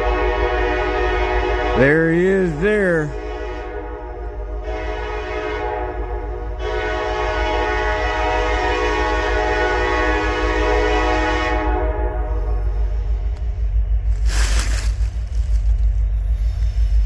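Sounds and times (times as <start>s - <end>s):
locomotive air horn: 0.0s - 13.0s.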